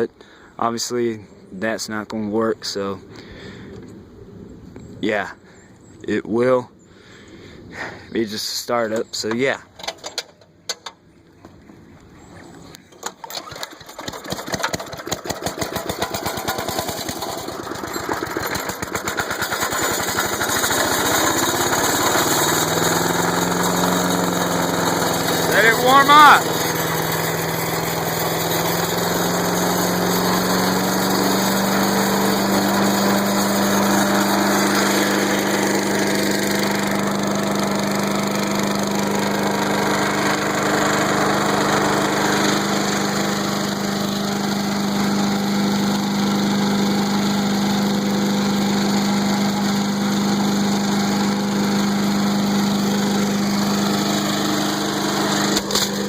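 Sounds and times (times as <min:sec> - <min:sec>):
small gas engine running: 0:12.7 - 0:56.0.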